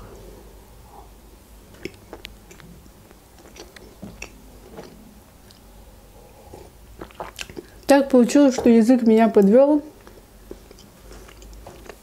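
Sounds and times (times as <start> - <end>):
wet mouth clicks: 1.7 - 2.7, 3.4 - 5.7, 7.0 - 7.9, 10.0 - 12.0
chewing sponge cake: 1.7 - 5.7, 6.4 - 8.7, 9.4 - 12.0.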